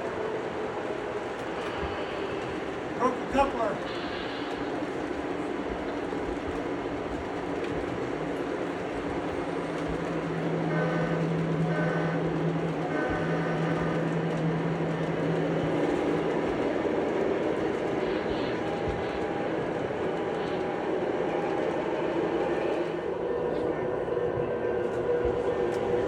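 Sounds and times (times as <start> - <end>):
train rail rumble: 0.0 - 26.0.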